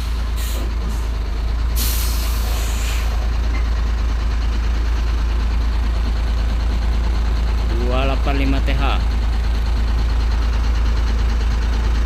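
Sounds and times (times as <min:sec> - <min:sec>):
air brake hiss: 0:00.0 - 0:01.1, 0:01.8 - 0:03.2
diesel truck engine rumbling: 0:00.0 - 0:12.0.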